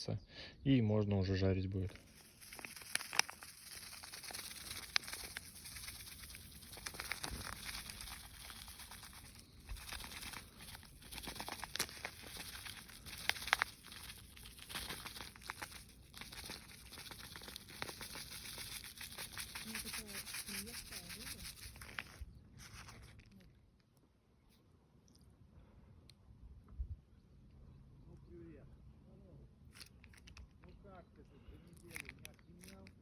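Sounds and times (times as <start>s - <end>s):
crinkling and rustling handling: 1.8s - 24.0s, 31.7s - 33.0s.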